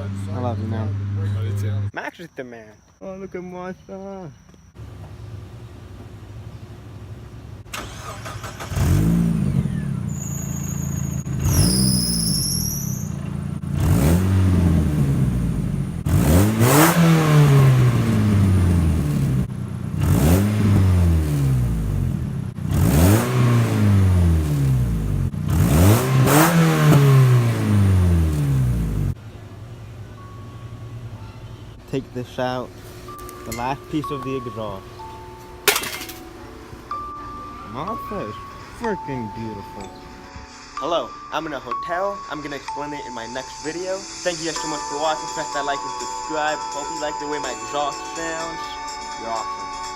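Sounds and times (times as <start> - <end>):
car engine revving: 7.6 - 29.2
high falling whistle: 9.7 - 13.2.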